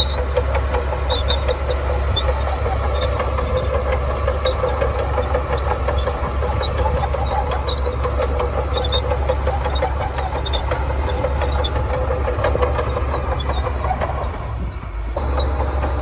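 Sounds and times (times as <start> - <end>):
bulldozer diesel engine running: 0.0 - 16.0
light clicks and rattles: 0.0 - 16.0.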